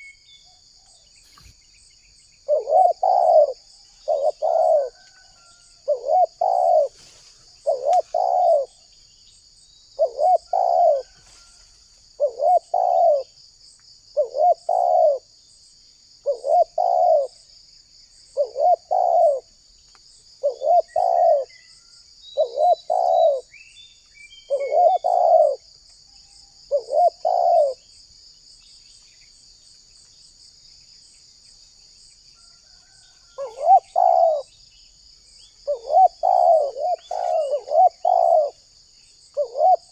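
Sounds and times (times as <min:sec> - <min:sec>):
dove cooing: 0:02.4 - 0:07.0, 0:07.6 - 0:08.8, 0:10.0 - 0:11.3, 0:12.2 - 0:13.4, 0:14.2 - 0:15.3, 0:16.2 - 0:17.4, 0:18.4 - 0:19.5, 0:20.4 - 0:21.5, 0:22.4 - 0:23.5, 0:24.5 - 0:25.7, 0:26.7 - 0:27.8, 0:32.8 - 0:34.5, 0:35.6 - 0:38.6, 0:39.3 - 0:39.9.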